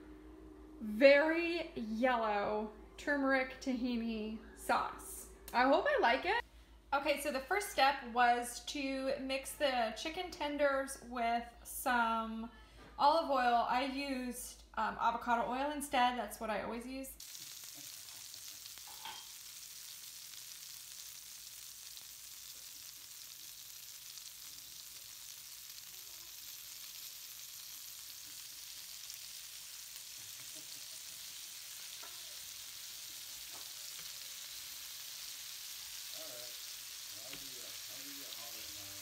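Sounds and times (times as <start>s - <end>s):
chicken frying in oil: 17.2s - 39.0s.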